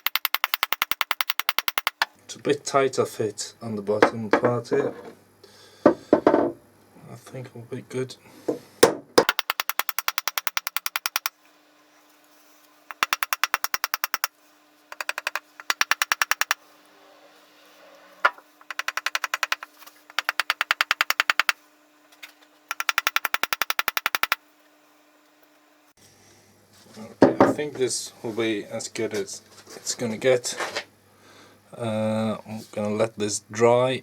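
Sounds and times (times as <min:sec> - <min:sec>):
hammer knocking wooden wedge: 0:00.0 - 0:02.1, 0:04.0 - 0:05.1, 0:05.9 - 0:06.6, 0:08.5 - 0:11.3, 0:12.9 - 0:14.3, 0:14.9 - 0:16.6, 0:18.3 - 0:21.6, 0:22.7 - 0:24.4, 0:27.2 - 0:27.6.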